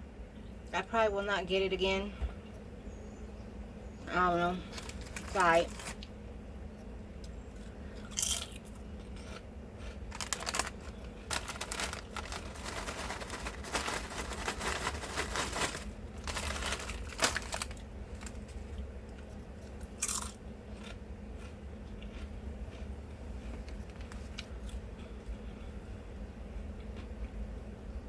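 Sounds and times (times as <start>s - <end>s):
steady low hum: 0.0s - 28.0s
person chewing crunchy food: 7.5s - 25.5s.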